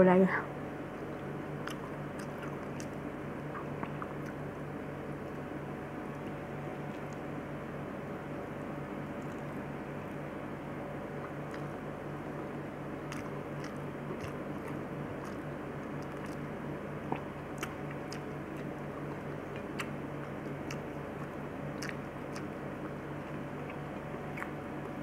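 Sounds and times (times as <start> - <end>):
steady low hum: 0.0 - 25.0
person chewing: 1.0 - 4.6, 11.2 - 24.6.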